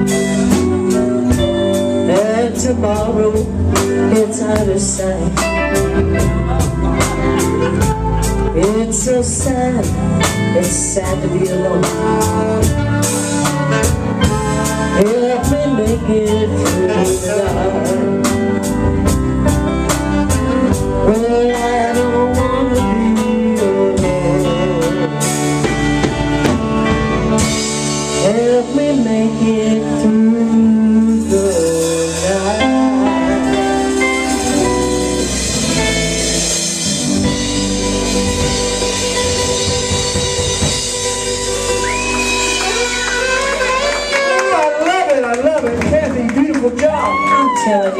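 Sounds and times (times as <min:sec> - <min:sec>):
wavering lead melody: 0:00.0 - 0:45.1
live band playing country ballad: 0:00.0 - 0:47.9
drums ticking: 0:25.4 - 0:27.9.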